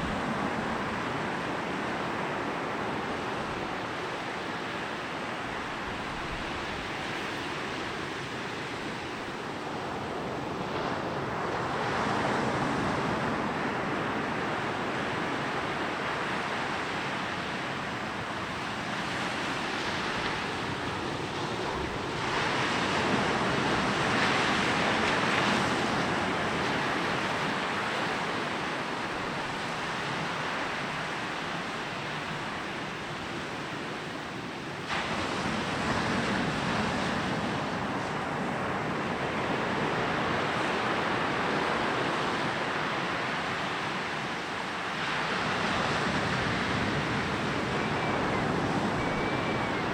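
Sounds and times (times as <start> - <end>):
waves breaking on a beach: 0.0 - 49.9.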